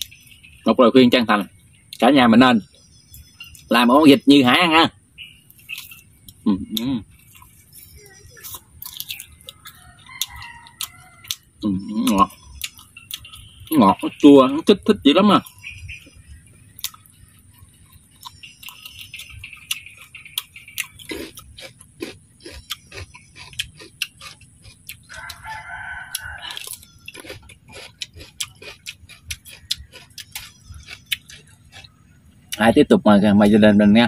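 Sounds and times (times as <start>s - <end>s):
chewing and crunching food: 5.4s - 32.8s
rooster crowing: 9.4s - 11.7s, 25.1s - 27.4s.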